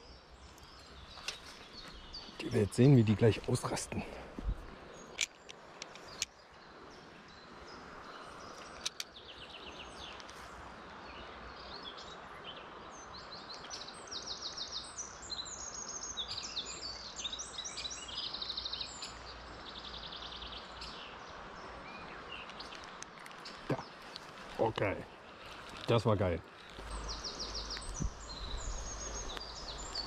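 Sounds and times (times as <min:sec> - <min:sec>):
songbirds trilling: 0:00.0 - 0:30.0
sharp clicks: 0:08.7 - 0:09.1.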